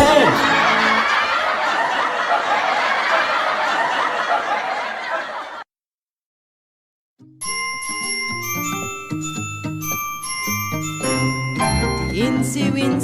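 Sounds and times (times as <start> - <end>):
children laughing and giggling: 0.2 - 5.6
bell-like chime notes: 7.4 - 12.6
nursery rhyme song: 7.4 - 13.0.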